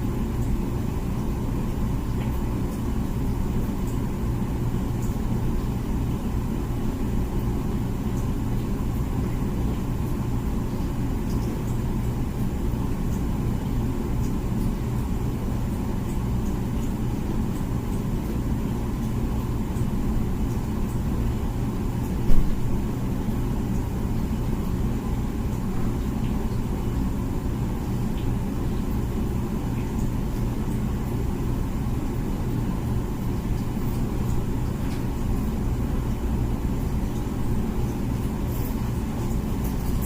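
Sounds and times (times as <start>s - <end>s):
dishwasher humming: 0.0s - 40.0s.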